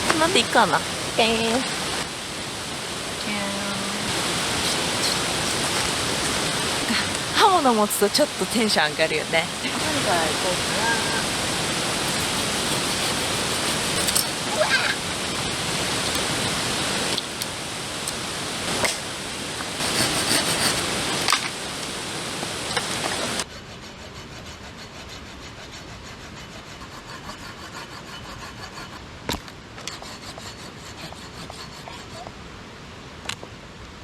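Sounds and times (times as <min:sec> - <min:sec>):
blade rasping through firewood: 0:11.1 - 0:14.9, 0:19.8 - 0:21.3, 0:23.1 - 0:29.0, 0:29.8 - 0:32.3.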